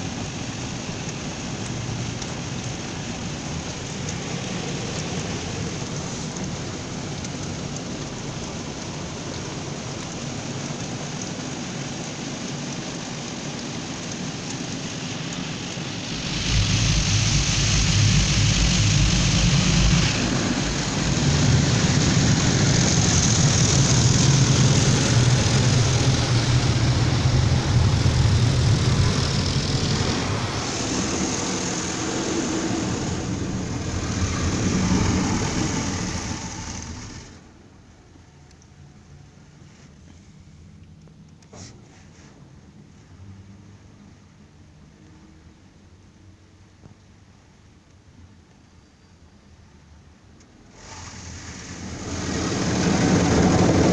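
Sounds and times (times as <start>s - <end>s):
water spraying: 0.0s - 37.8s, 50.6s - 53.9s
car wash machine hum: 0.0s - 38.4s, 50.6s - 53.9s.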